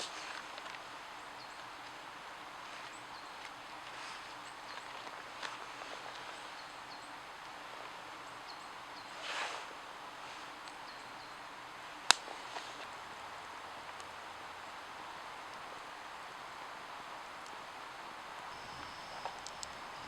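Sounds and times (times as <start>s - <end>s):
steady hiss: 0.0s - 20.0s
sharp crack: 12.1s - 12.4s.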